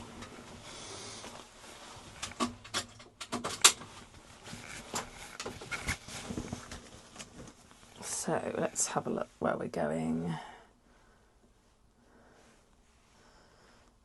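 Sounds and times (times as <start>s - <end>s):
clicks and knocks of handling: 2.1s - 7.6s.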